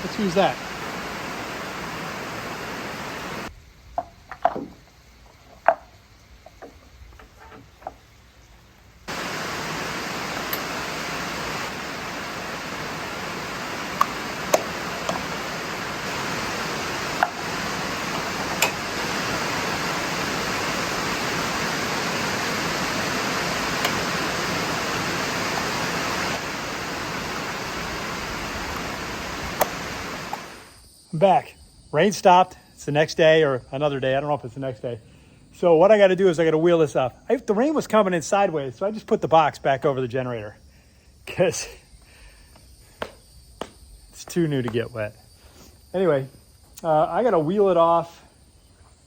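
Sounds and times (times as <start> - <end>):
heavy rain falling: 0.0 - 3.5, 9.1 - 30.6
raindrops tapping: 9.1 - 30.6.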